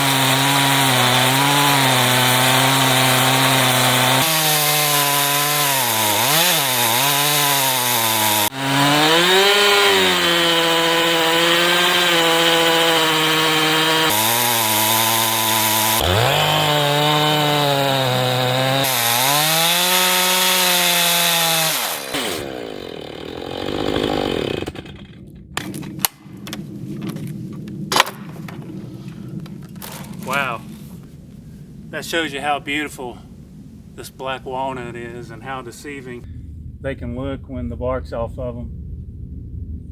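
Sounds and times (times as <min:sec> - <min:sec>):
chainsaw cutting log: 0:00.0 - 0:26.1.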